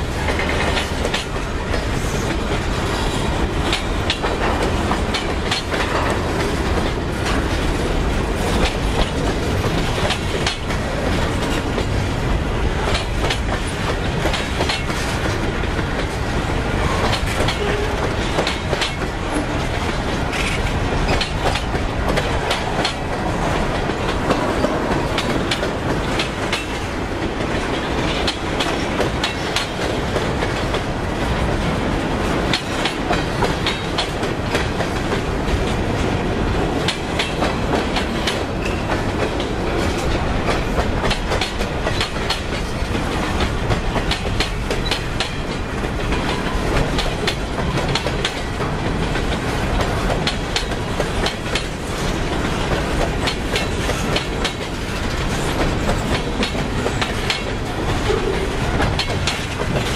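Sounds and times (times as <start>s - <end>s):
freight train rumbling past: 0.0s - 59.9s
wheels clicking over rail joints: 0.0s - 59.9s.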